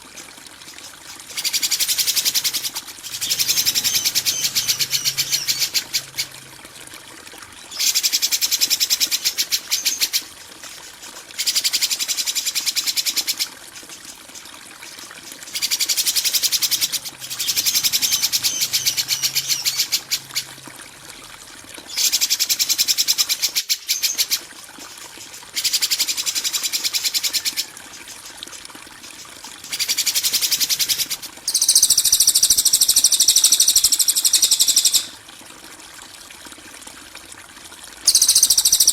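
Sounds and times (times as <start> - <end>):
bird trilling phrase: 2.4 - 6.5.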